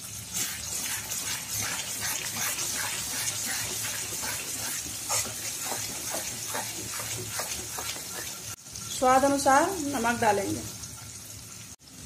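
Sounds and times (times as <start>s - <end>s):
paste sizzling in hot oil: 0.0s - 12.0s
metal spatula scraping: 0.3s - 8.6s.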